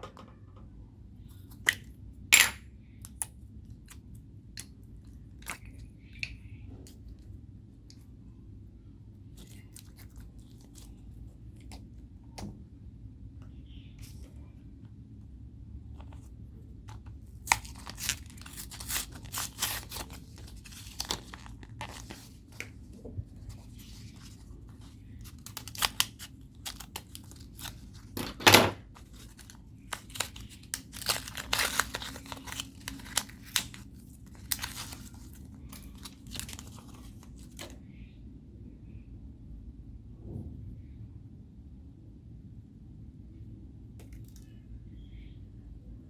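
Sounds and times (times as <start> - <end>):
slime crackling and snapping: 25.2 - 27.8, 29.1 - 33.8.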